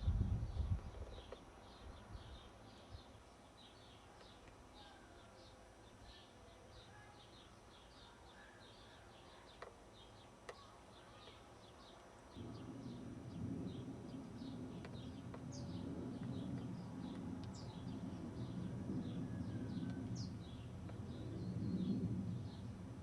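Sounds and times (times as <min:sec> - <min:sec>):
faint high bird chirps: 0:01.1 - 0:13.0.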